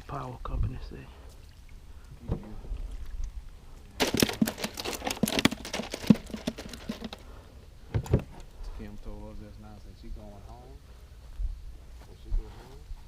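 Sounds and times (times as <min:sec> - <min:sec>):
crinkling and rustling: 0:04.0 - 0:08.5.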